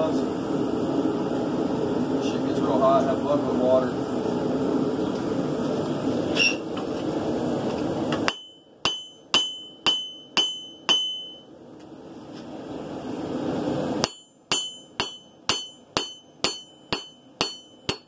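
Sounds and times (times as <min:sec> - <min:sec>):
metal clink: 0:08.3 - 0:11.4, 0:14.0 - 0:18.0
hammer blows on anvil ringing: 0:08.3 - 0:11.5, 0:14.0 - 0:18.0.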